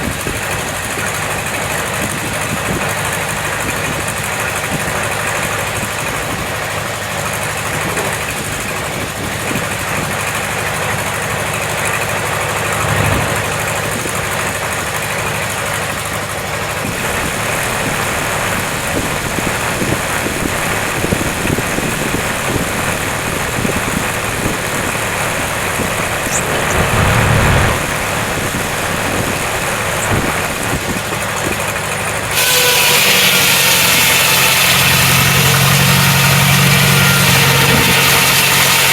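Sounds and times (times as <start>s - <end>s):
tractor engine running: 0.0s - 32.4s
loud engine with hiss: 0.0s - 38.9s.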